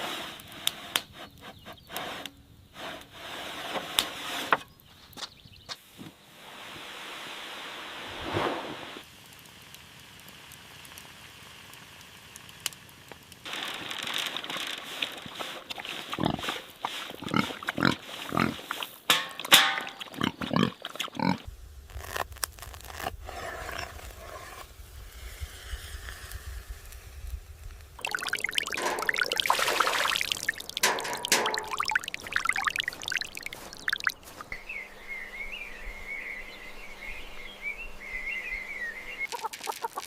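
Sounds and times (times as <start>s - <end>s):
farm animals calling: 39.2s - 40.0s.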